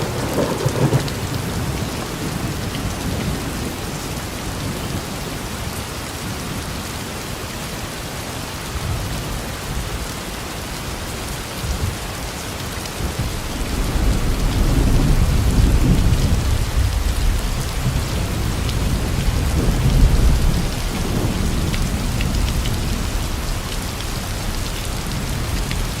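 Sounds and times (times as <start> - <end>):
thunder rumbling: 0.0 - 5.0, 13.0 - 26.0
steady rain: 0.0 - 26.0.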